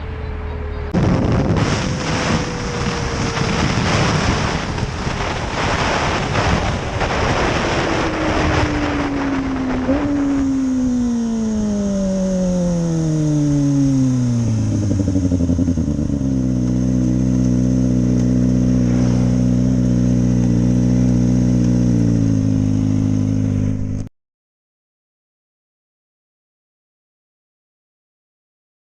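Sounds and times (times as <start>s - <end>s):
motorcycle engine revs and idle: 0.0s - 24.1s.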